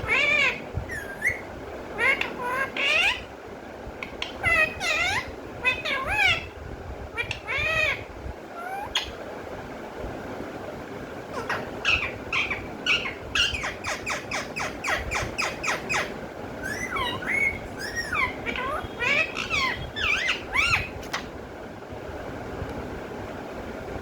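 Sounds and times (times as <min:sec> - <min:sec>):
parrot calling: 0:00.0 - 0:03.3, 0:04.0 - 0:09.2, 0:11.3 - 0:21.3.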